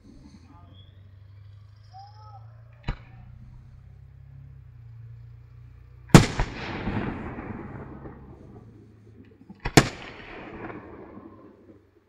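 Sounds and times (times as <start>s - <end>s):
firework shells bursting: 6.1s - 12.0s.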